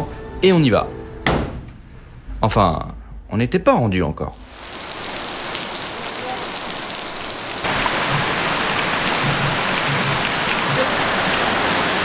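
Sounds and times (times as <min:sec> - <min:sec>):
steady rain falling: 0:04.4 - 0:12.0.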